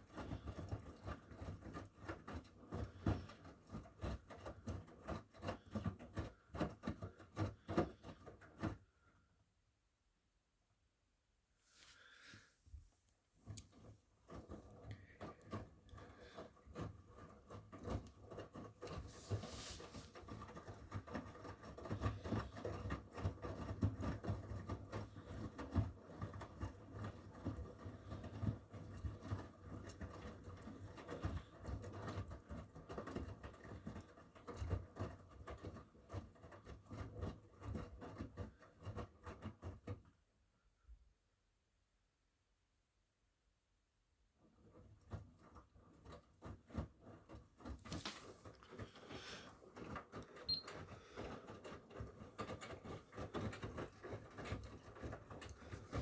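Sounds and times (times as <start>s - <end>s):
wet laundry tumbling and sloshing: 19.0s - 21.0s
washing machine motor hum: 47.6s - 56.0s.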